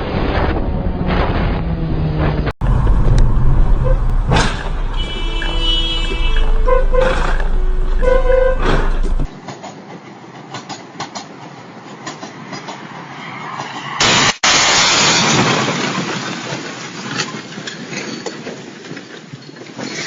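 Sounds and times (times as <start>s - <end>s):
vehicle running noise: 0.0s - 9.3s
sudden loud burst of noise: 2.6s - 9.3s
beeping tones: 3.7s - 9.3s.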